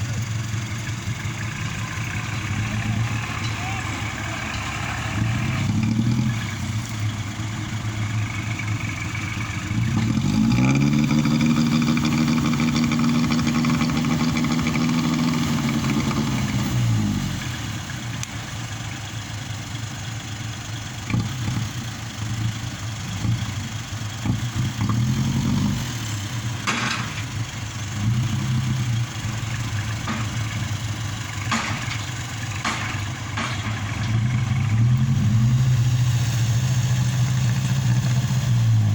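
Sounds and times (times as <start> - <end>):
tractor diesel engine running: 0.0 - 38.9
sharp knocks: 31.5 - 33.9.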